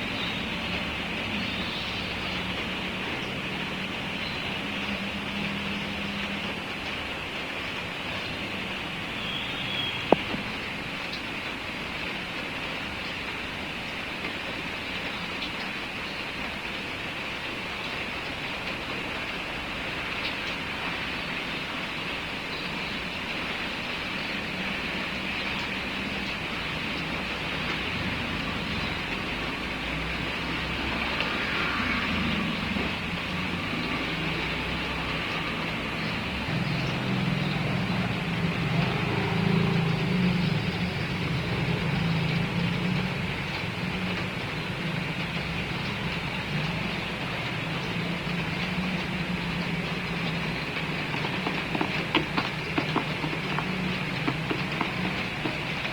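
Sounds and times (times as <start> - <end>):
rain falling: 0.0 - 55.9
vehicle running hum: 22.5 - 55.9.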